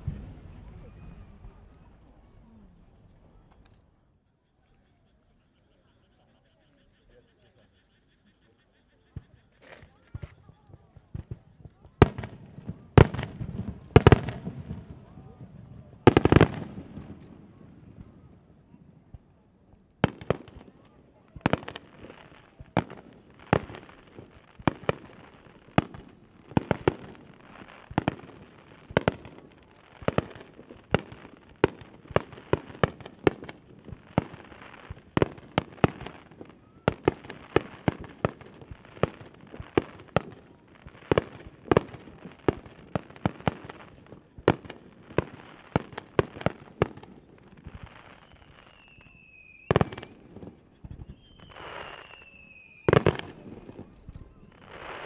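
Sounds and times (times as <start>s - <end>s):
fireworks crackling: 0.0s - 3.9s, 9.1s - 55.0s
high falling whistle: 51.1s - 52.9s.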